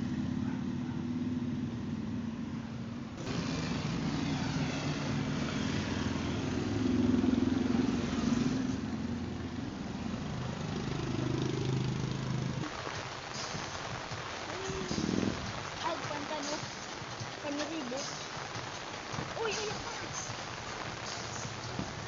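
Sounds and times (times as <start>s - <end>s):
vehicle engine revving: 0.0s - 15.8s.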